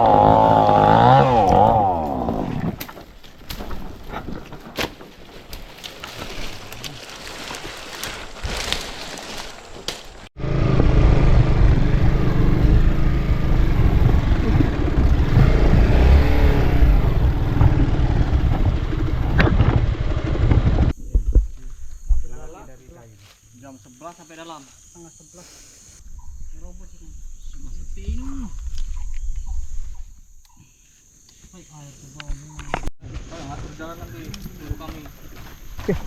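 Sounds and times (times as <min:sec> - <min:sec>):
motorcycle engine running: 0:10.4 - 0:21.0.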